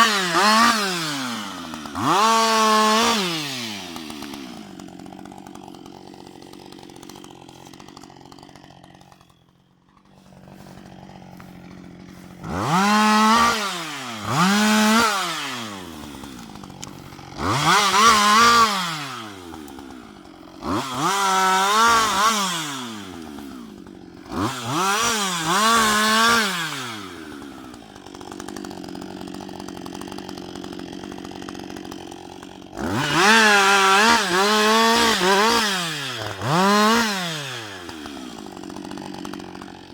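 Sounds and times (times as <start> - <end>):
chain cutting wood: 0.0 - 39.9
chainsaw revving and idling: 0.0 - 39.9.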